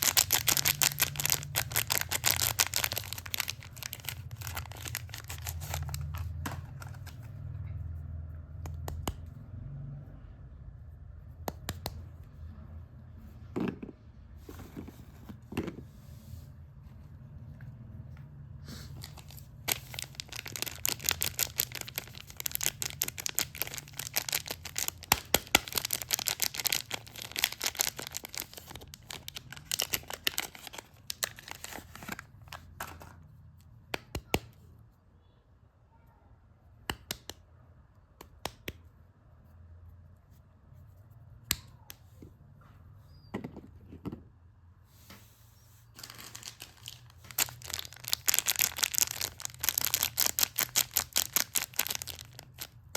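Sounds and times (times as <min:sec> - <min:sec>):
soap wrapping crinkling: 0:00.0 - 0:07.2, 0:19.0 - 0:33.1, 0:46.0 - 0:52.9.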